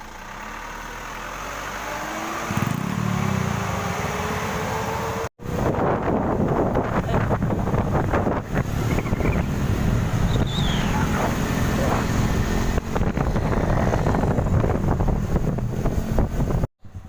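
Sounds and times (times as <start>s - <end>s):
wind buffeting microphone: 5.4s - 17.0s.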